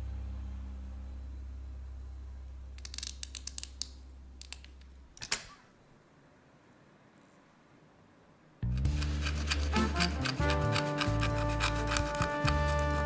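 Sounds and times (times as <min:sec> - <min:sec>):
background music: 0:08.6 - 0:13.0.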